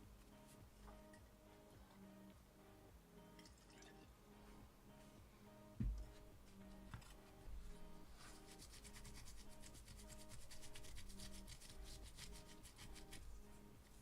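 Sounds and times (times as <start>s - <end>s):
quiet background music: 0.0s - 14.0s
brush scrubbing circuit board: 8.2s - 13.4s.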